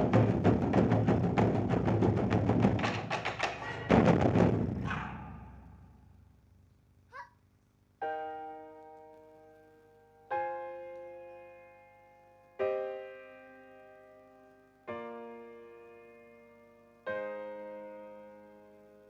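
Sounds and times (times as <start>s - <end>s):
piano chords ringing: 8.0s - 19.0s.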